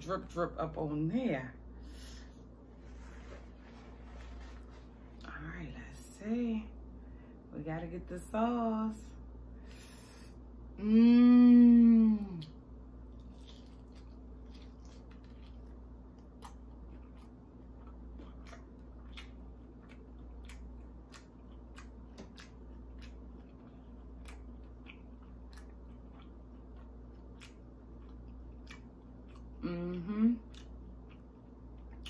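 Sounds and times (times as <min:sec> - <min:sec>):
faint steady hum: 0:00.0 - 0:32.0
crisp crunches of chewing: 0:13.0 - 0:29.8.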